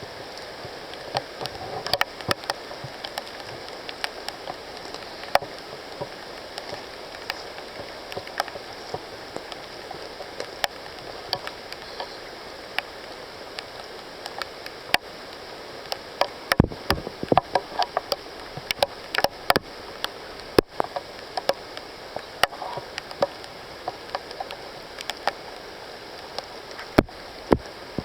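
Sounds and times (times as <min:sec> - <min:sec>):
rain on foliage: 0:00.0 - 0:28.0.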